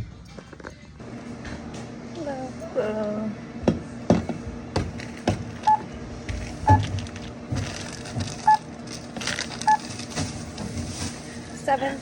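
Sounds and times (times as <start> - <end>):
barcode scanner beeping: 5.7 - 5.9, 8.4 - 8.6, 9.6 - 9.9.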